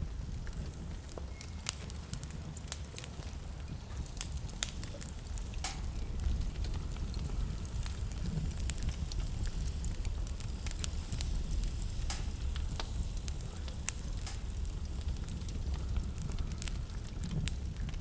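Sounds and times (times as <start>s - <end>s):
low rumble of flames: 0.0s - 18.0s
wood fire crackling and popping: 0.0s - 18.0s.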